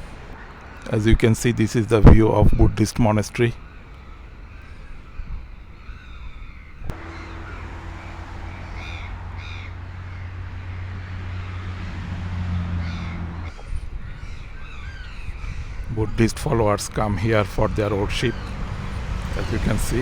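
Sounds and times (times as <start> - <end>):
crows cawing: 3.6 - 20.0
steady low hum: 6.8 - 14.2.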